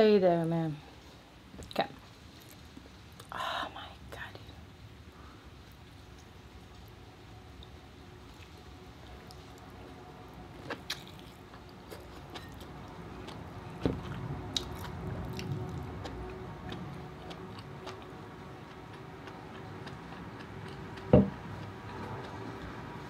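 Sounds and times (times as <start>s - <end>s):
person chewing lobster: 10.5s - 23.0s.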